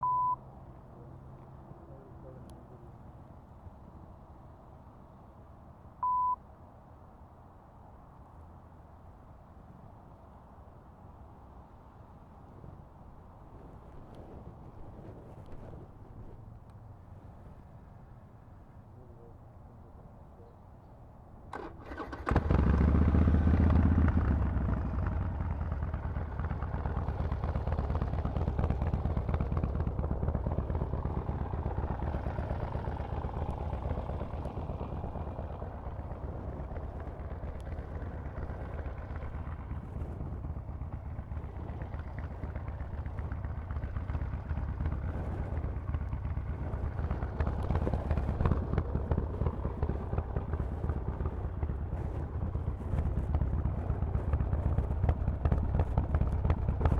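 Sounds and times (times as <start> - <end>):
motorcycle engine idling: 21.5 - 56.9.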